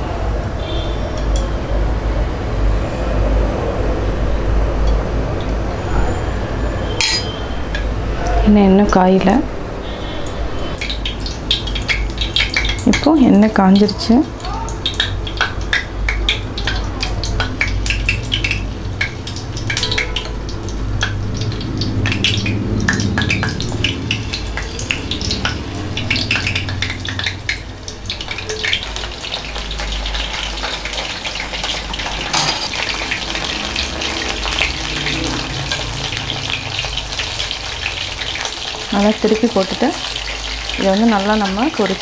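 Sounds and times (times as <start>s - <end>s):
food deep-frying in oil: 0.0s - 42.0s.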